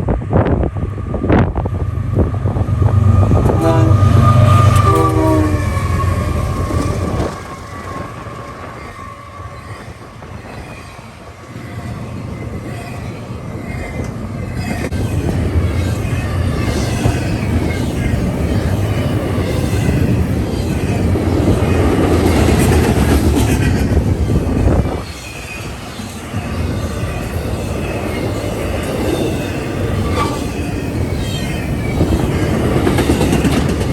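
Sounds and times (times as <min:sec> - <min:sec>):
train wheels rumbling on rail: 0:00.0 - 0:33.9
faint high wheel squeal: 0:03.4 - 0:15.3.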